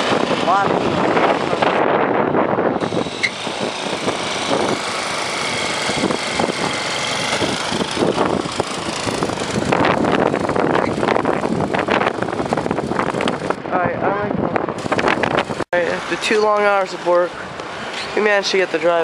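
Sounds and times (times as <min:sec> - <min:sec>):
engine running steadily: 0:02.7 - 0:16.3.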